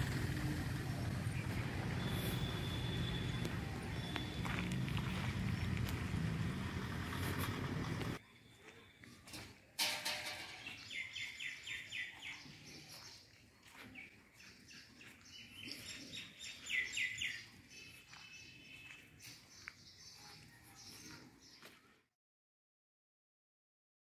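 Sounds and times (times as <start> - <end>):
birds calling high notes: 1.2 - 6.8.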